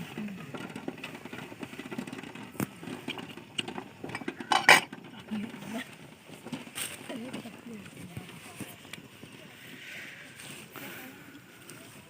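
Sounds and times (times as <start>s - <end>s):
pots and utensils clinking: 0.5s - 5.9s.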